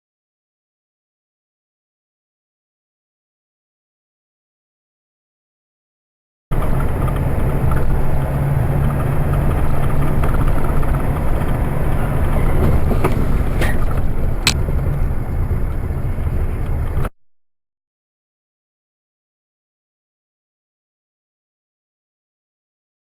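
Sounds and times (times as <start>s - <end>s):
vehicle running rumble: 6.5s - 17.1s.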